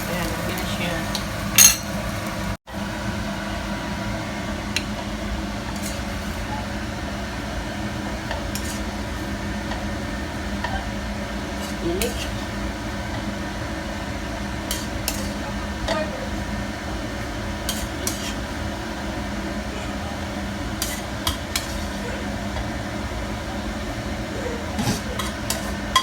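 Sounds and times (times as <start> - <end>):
utensil clinking against a pan: 0.6 - 2.0.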